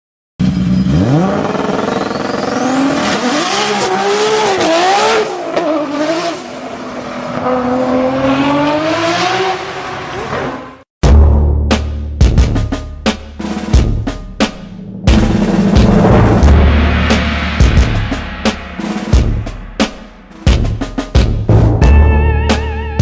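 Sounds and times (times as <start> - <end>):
car engine revving: 0.4 - 10.8
high thin whine: 16.2 - 20.4.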